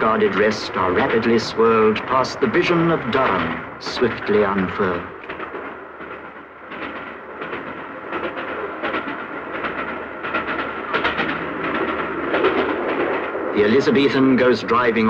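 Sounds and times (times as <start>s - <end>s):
steam train rumbling rush: 0.0s - 15.0s
wheels clacking over rail joints: 0.0s - 15.0s.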